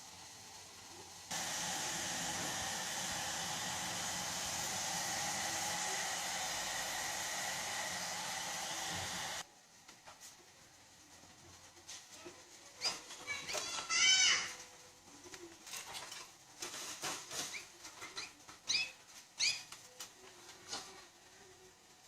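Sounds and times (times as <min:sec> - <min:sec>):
electric appliance rushing: 0:01.3 - 0:09.4.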